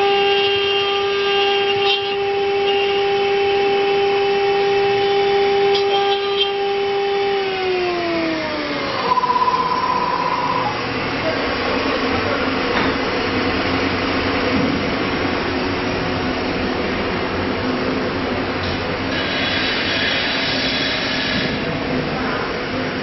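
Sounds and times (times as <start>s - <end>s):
router spindle whine winding down: 6.7s - 11.1s
machine hum: 8.4s - 11.3s
short pulsing buzz: 8.9s - 11.0s.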